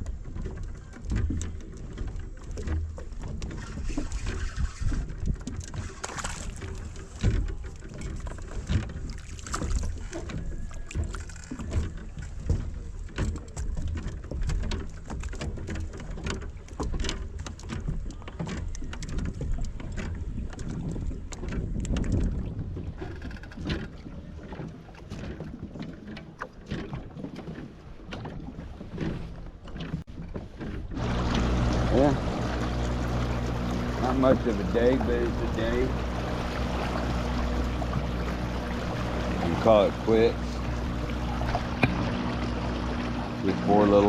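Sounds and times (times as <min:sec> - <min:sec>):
wind rumble on microphone: 0:00.0 - 0:17.0, 0:17.8 - 0:25.8
knocks and splashes: 0:00.0 - 0:44.0.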